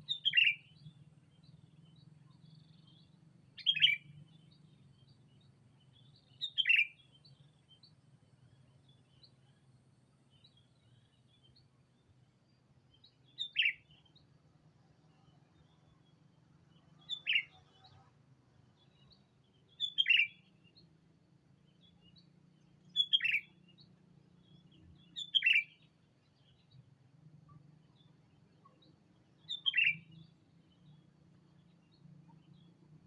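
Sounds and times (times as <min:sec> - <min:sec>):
bulbul downward-sweeping calls: 0:00.0 - 0:09.5, 0:13.0 - 0:14.2, 0:17.0 - 0:18.1, 0:18.7 - 0:20.9, 0:21.6 - 0:26.8, 0:27.4 - 0:33.0
faint bird chirps: 0:00.0 - 0:33.0.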